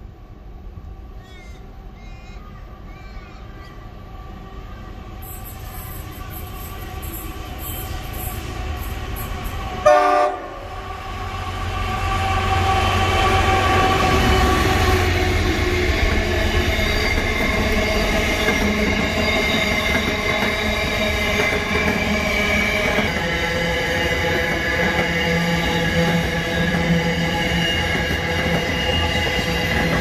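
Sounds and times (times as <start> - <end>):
train wheels squealing: 1.2 - 9.7, 12.4 - 30.0.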